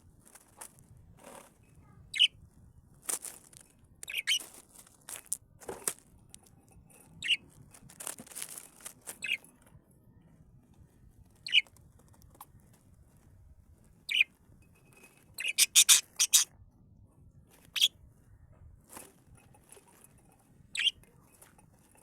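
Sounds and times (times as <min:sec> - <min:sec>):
birds chirping: 0:02.1 - 0:02.3, 0:04.0 - 0:04.4, 0:07.2 - 0:07.4, 0:09.2 - 0:09.4, 0:11.4 - 0:11.7, 0:14.1 - 0:14.3, 0:15.4 - 0:16.5, 0:20.7 - 0:21.0
wing fluttering: 0:15.4 - 0:16.5.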